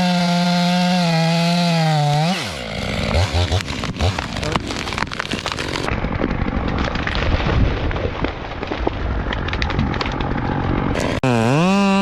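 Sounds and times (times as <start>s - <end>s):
chainsaw running: 0.0s - 6.6s, 10.3s - 12.0s
tree being sawn: 0.0s - 12.0s
wood cracking: 0.0s - 12.0s.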